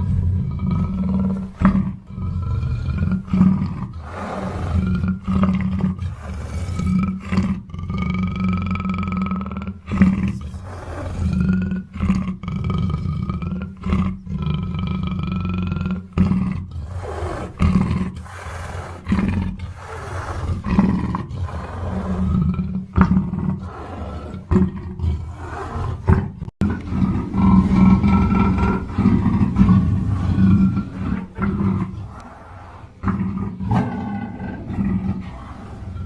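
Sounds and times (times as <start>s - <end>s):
deep low rumble: 26.6s - 36.0s.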